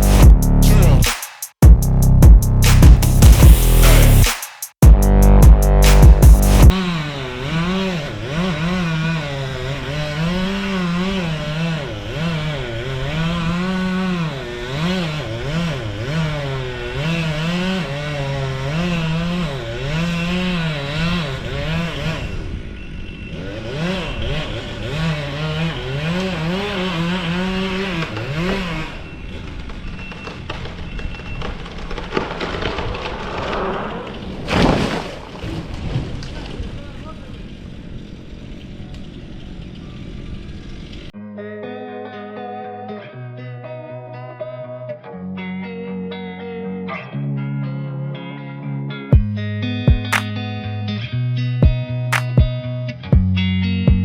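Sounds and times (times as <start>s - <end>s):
chainsaw cutting tree: 6.6s - 35.4s, 50.1s - 50.3s.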